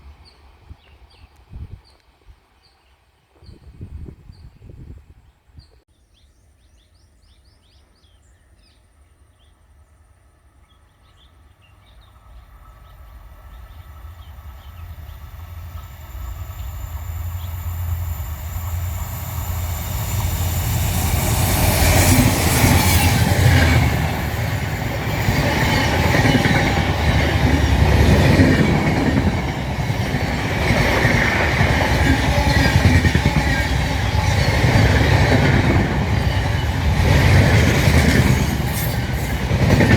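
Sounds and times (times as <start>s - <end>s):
passenger train passing: 10.0s - 39.9s.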